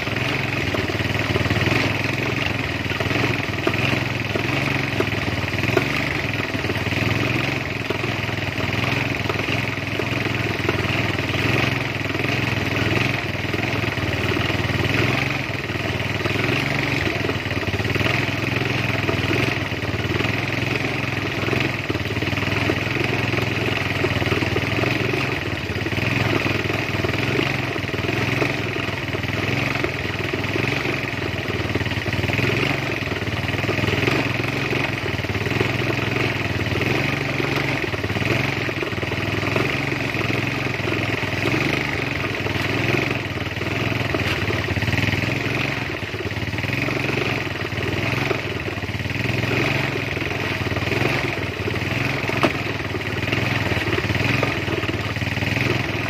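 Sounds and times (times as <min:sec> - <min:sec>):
ice cream machine motor running: 0:16.4 - 0:56.0.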